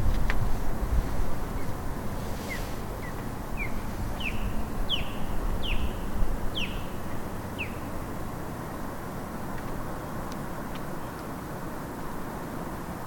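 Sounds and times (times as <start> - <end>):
bird chirping: 2.5 - 7.9.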